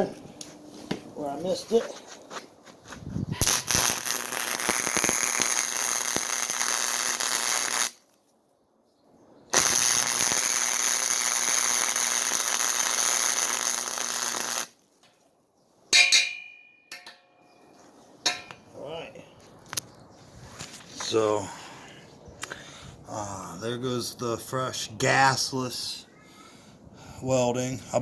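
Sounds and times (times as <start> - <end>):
welder low hum: 3.4 - 8.0, 9.6 - 14.7
welding arc crackling: 3.4 - 8.1, 9.5 - 14.8
metallic clink: 16.0 - 17.4.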